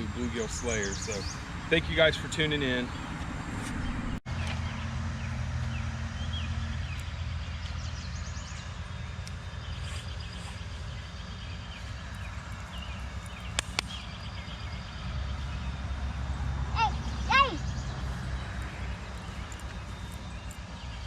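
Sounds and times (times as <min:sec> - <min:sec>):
birds chirping: 0:00.0 - 0:21.0
steady low rumble: 0:00.0 - 0:21.0
sharp clicks: 0:13.2 - 0:14.0.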